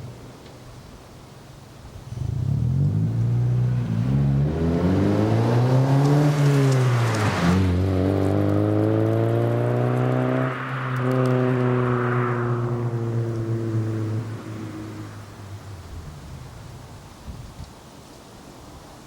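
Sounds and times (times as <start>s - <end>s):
car engine exhaust revving: 2.1s - 15.7s.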